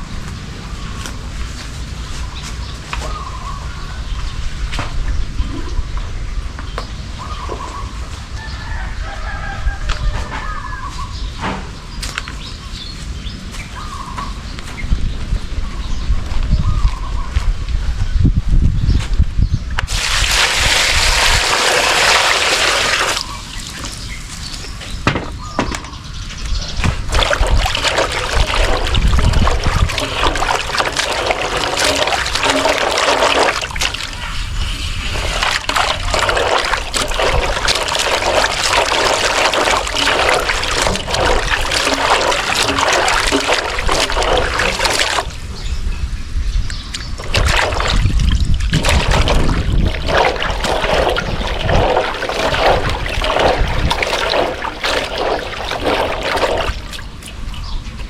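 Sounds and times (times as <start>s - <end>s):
water sloshing and splashing: 19.9s - 25.0s, 26.7s - 45.6s, 46.9s - 57.7s.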